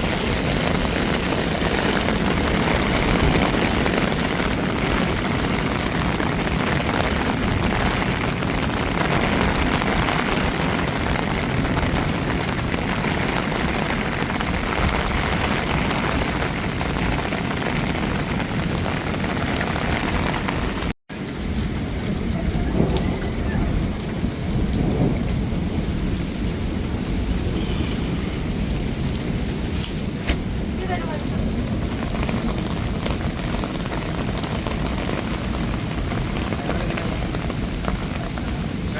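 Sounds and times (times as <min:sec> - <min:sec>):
heavy rain falling: 0:00.0 - 0:38.9
low rumbling thunder: 0:00.0 - 0:38.9.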